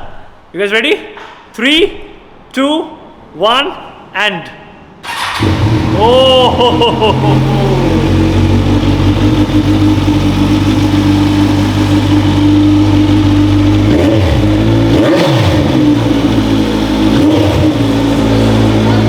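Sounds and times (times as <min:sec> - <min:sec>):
motorcycle engine with throttle blips: 0:05.1 - 0:19.0.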